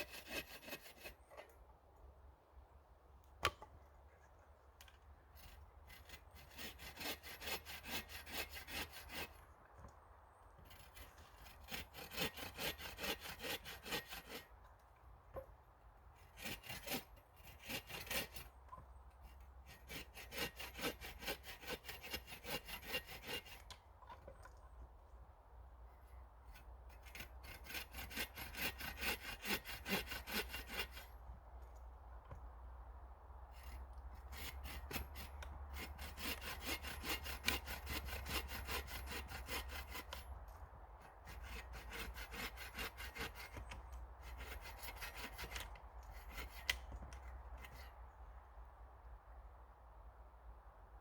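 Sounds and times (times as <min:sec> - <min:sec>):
hand saw cutting wood: 0:00.0 - 0:01.6, 0:04.8 - 0:09.5, 0:10.6 - 0:15.5, 0:16.2 - 0:24.4, 0:26.4 - 0:31.3, 0:33.5 - 0:48.0.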